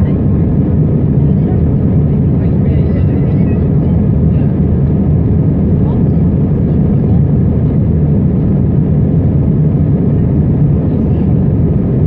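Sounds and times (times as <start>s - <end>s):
airliner cabin engine roar: 0.0s - 12.0s.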